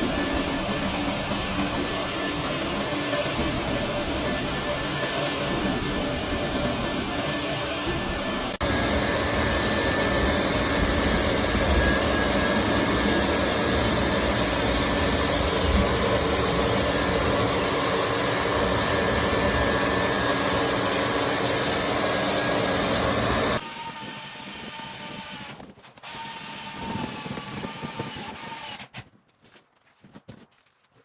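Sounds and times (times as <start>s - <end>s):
vacuum running: 0.0s - 23.6s.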